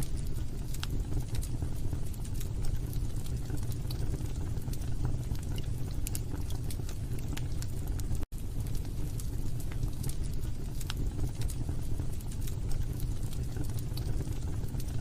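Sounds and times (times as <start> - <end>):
logs crackling and popping: 0.0 - 15.0
low rumble of flames: 0.0 - 15.0.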